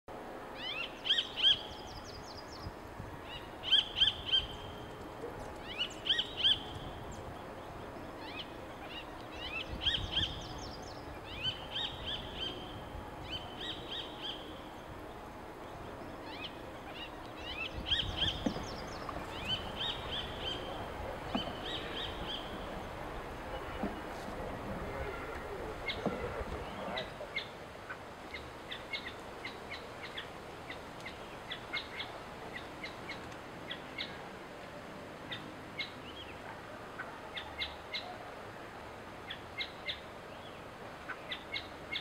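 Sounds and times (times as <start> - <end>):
faint outdoor background: 0.1 - 42.0
birds chirping and trilling: 5.6 - 24.2, 24.8 - 34.2.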